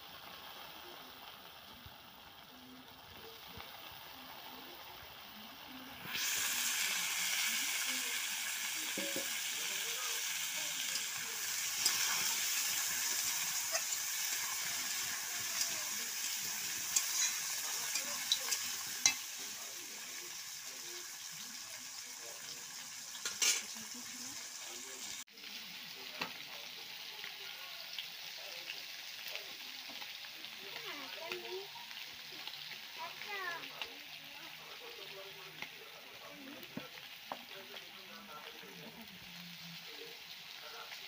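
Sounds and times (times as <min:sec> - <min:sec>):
potato wedges sizzling in oil: 0:00.0 - 0:41.0
metal spatula scraping pan: 0:16.9 - 0:19.2.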